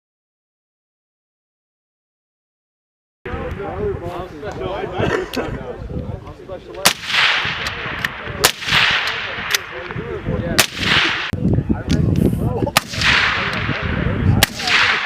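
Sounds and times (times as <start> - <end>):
fainter distant gunshots: 6.8 - 11.4, 12.8 - 15.0
loud gunshots with echo: 6.8 - 11.4, 12.7 - 15.0.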